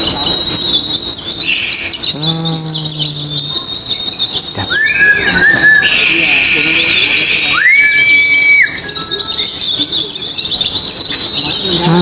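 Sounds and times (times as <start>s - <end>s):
songbirds twittering: 0.0s - 12.0s.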